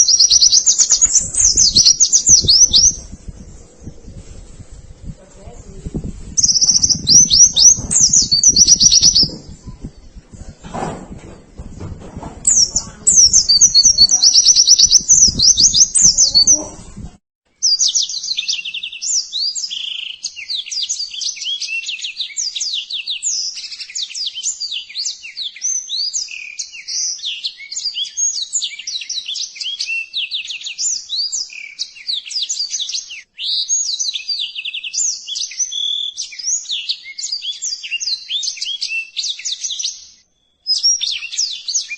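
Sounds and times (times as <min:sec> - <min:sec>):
birds chirping trills: 0:00.0 - 0:04.7, 0:05.6 - 0:23.8.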